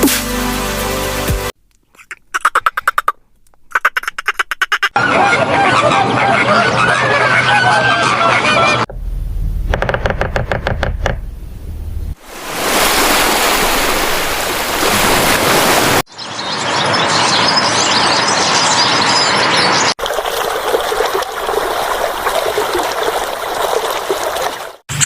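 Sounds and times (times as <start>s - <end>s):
running splashing water: 12.2s - 16.1s, 20.0s - 24.9s.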